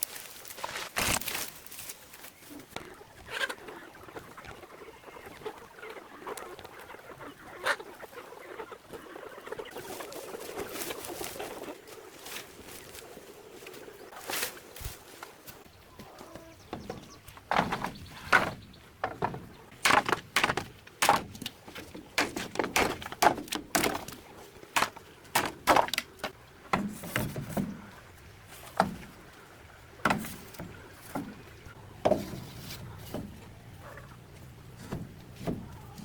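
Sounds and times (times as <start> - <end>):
hard objects knocking and clattering: 16.7 - 24.2, 24.8 - 27.6.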